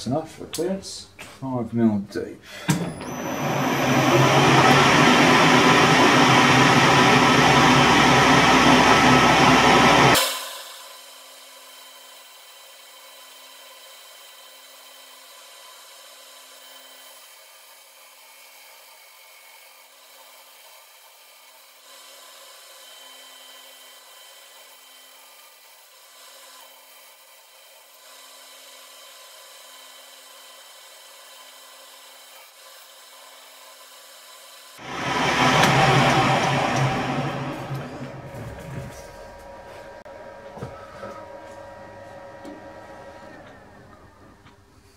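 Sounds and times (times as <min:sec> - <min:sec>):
lathe cutting hiss: 0:02.7 - 0:15.2, 0:34.5 - 0:40.1
low hum: 0:34.8 - 0:44.6.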